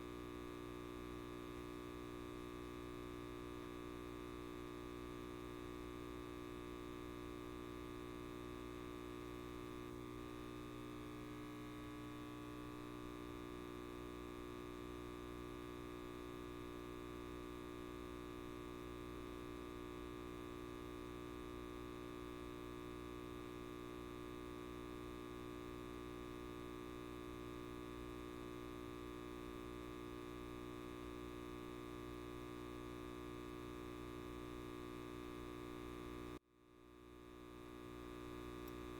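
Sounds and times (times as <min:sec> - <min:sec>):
light bulb buzzing: 0:37.2 - 0:38.9
faint tick: 0:38.6 - 0:38.8.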